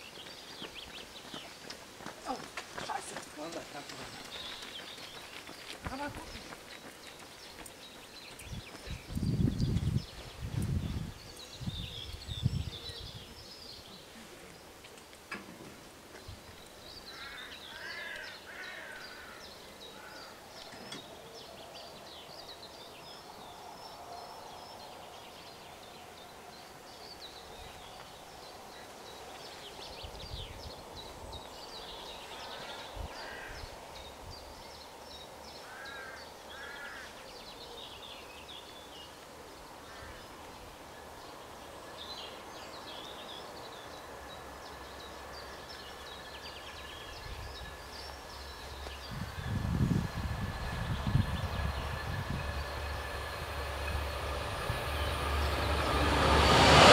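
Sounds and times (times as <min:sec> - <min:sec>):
birds calling and singing: 0:00.0 - 0:15.3, 0:16.1 - 0:55.9
faint outdoor background noise: 0:00.0 - 0:56.9.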